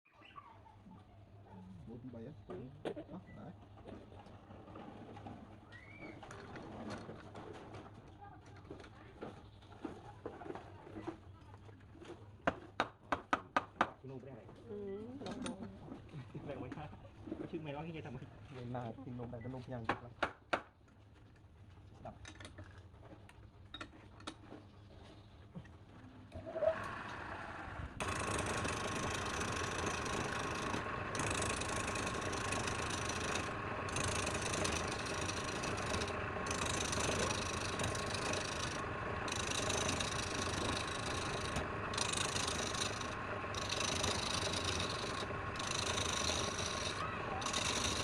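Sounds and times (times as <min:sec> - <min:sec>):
wood lathe humming and whining: 0:26.5 - 0:48.0
tool rasping against spinning wood: 0:28.0 - 0:48.0.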